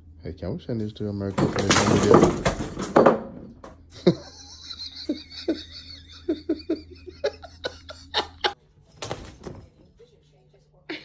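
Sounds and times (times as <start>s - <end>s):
laughter in short bursts: 4.0s - 8.6s.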